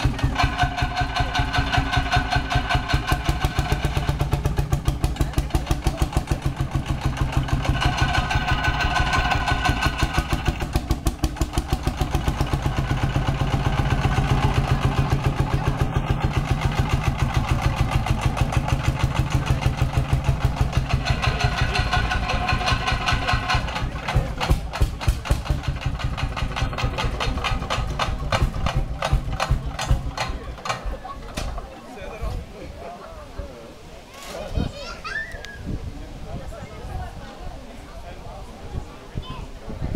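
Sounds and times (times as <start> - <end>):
tractor diesel engine running: 0.0 - 31.9.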